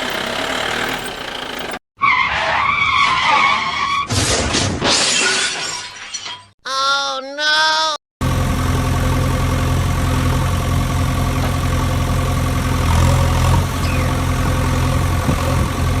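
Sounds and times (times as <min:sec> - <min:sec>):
vehicle engine idling: 0:00.0 - 0:01.8, 0:08.2 - 0:16.0.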